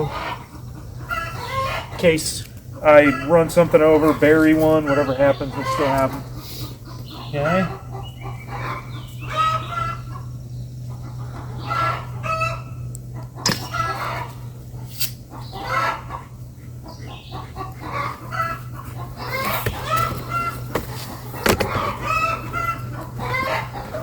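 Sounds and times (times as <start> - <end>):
chickens clucking: 0.0 - 24.0
rooster crowing: 21.5 - 24.0.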